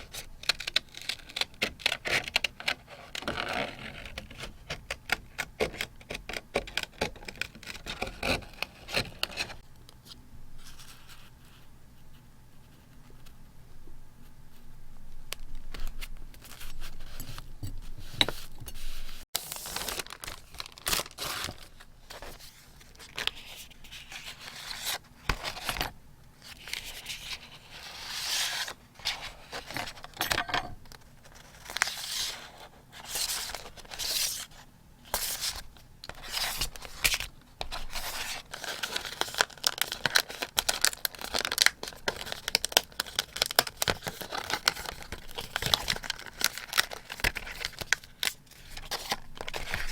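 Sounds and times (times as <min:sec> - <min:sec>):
paper tearing and crinkling: 0:19.4 - 0:25.8, 0:35.1 - 0:49.9.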